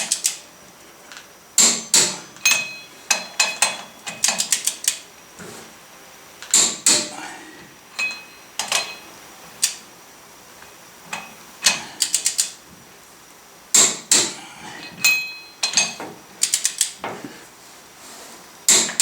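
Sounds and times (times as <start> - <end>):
torque wrench ratchet clicking: 11.6 - 12.6.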